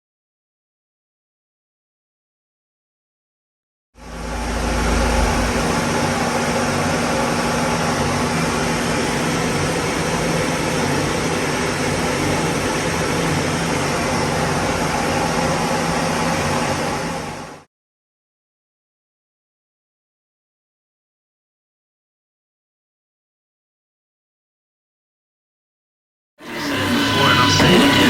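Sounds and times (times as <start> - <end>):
deep rumble: 4.0 - 6.8
car engine running steadily: 4.0 - 9.2
fan-like rushing noise: 4.0 - 17.6.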